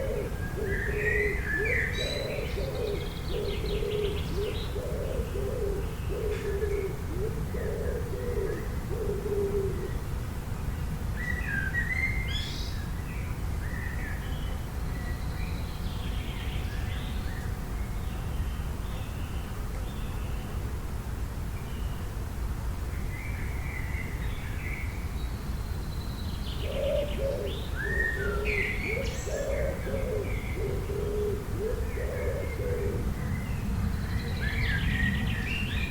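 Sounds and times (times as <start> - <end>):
low cooing calls: 0.0 - 10.1, 26.5 - 35.9
small birds chirping and trilling: 23.0 - 35.9.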